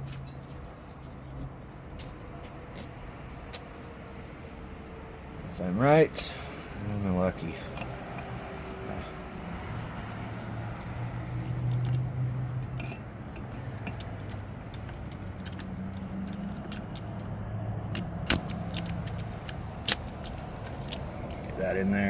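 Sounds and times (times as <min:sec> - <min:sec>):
small metal parts clicking: 0:11.4 - 0:17.2, 0:17.9 - 0:21.1.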